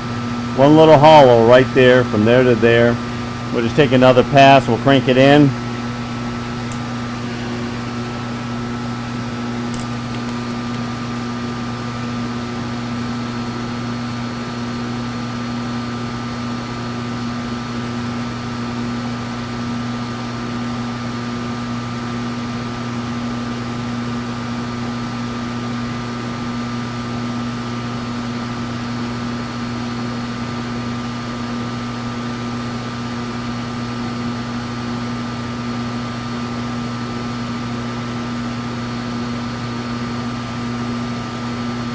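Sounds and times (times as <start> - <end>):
electric hum: 0.0 - 15.1
machine tool cutting: 6.5 - 11.4.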